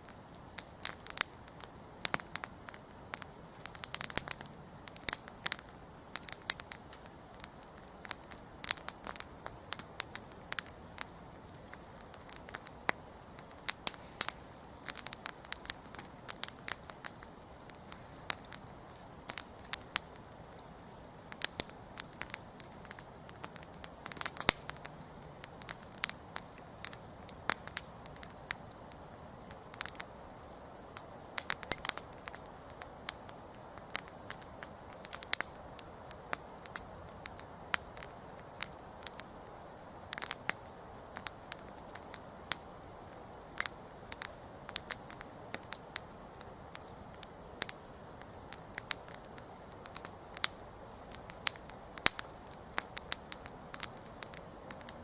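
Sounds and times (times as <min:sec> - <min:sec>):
campfire crackling and popping: 0:00.0 - 0:55.0
hiss of burning: 0:00.0 - 0:55.0.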